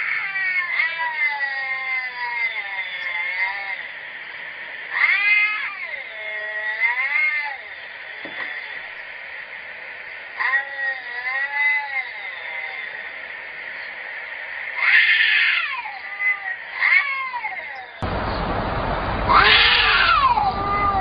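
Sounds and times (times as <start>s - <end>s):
cats yowling: 0.0s - 3.9s, 4.9s - 8.8s, 10.4s - 13.0s, 14.8s - 18.0s, 19.2s - 21.0s
steady background noise: 0.0s - 21.0s.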